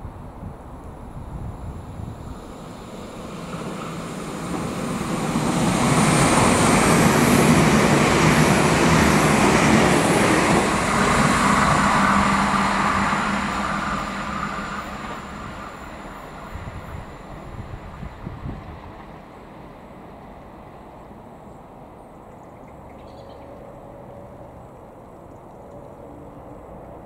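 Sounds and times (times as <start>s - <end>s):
train passing through station: 0.0s - 27.0s.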